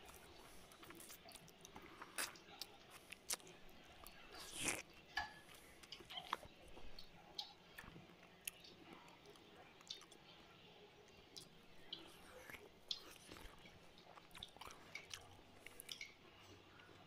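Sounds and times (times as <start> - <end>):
chewing and lip smacks: 0.0 - 17.0.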